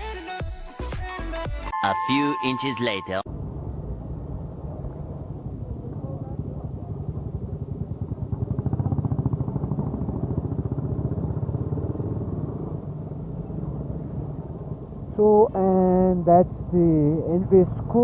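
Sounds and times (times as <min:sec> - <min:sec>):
motorcycle engine running: 0:03.3 - 0:18.0.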